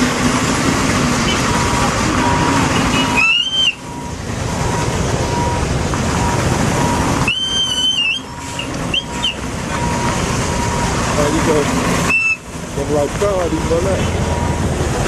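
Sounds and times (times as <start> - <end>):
heavy truck engine running: 0.0 - 15.0
high whistle blasts: 2.9 - 4.1, 6.8 - 9.4, 12.1 - 12.4.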